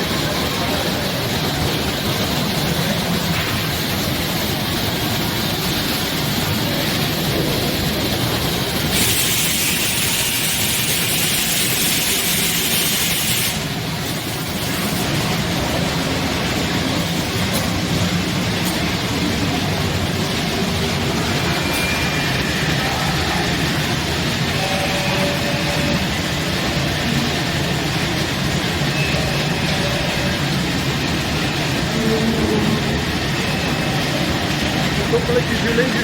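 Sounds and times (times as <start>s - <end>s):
machine mechanical drone: 0.0s - 36.0s
loud hiss: 8.5s - 15.8s.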